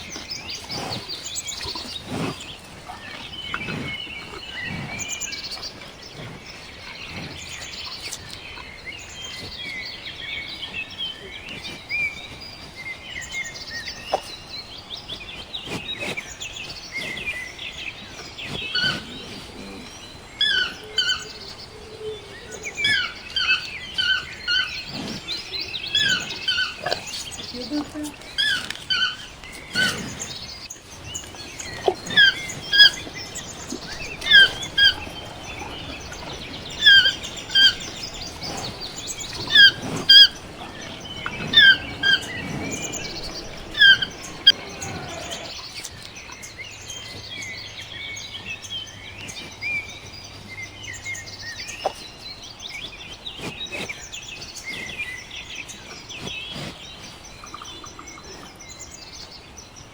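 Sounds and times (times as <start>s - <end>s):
birds chirping: 0.0s - 59.9s
bird call notes: 31.6s - 45.6s.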